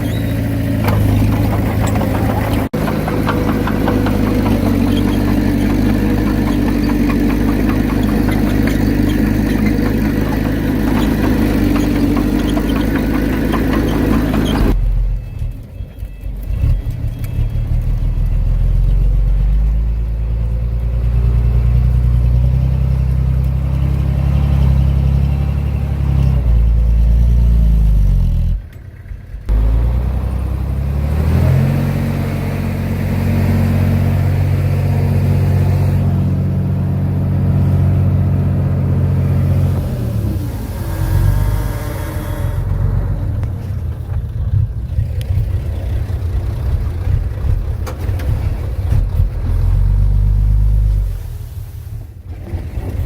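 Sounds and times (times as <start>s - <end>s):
heavy diesel engine under load: 0.0s - 53.0s.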